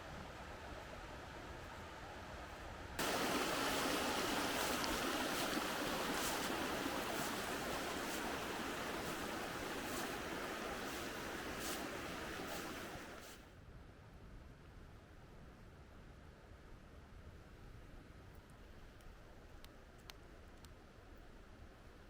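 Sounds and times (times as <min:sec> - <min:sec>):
creek water rushing: 0:03.0 - 0:13.4.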